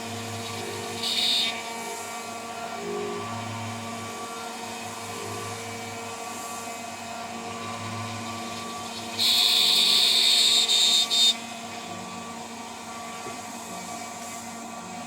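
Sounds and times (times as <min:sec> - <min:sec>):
cutter screeching on workpiece: 0:00.9 - 0:01.7, 0:08.6 - 0:11.4.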